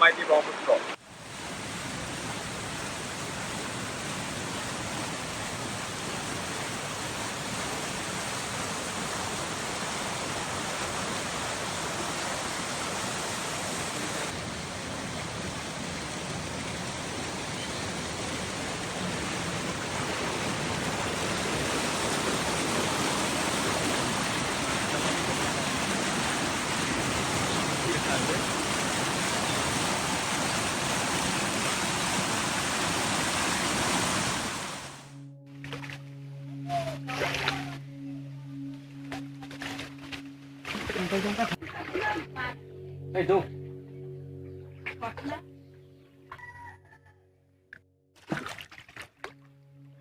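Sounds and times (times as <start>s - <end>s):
river rushing: 0.0s - 35.2s.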